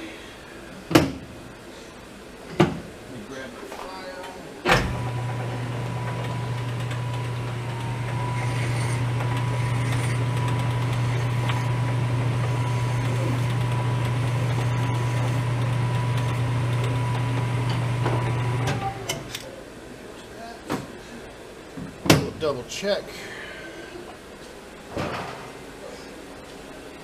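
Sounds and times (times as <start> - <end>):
metal lathe running: 4.9 - 19.0
thin steady whine: 5.0 - 20.2.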